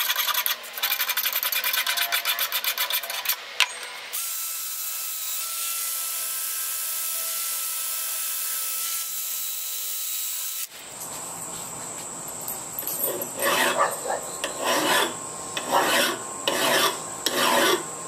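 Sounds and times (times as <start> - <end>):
hand file rasping: 0.0 - 3.4, 13.3 - 17.9.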